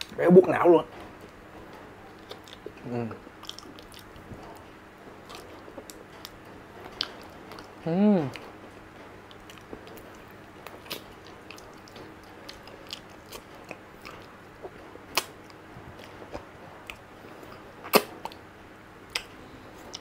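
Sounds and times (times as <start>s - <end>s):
quiet chewing: 1.2s - 8.6s, 9.2s - 18.4s, 19.1s - 20.0s.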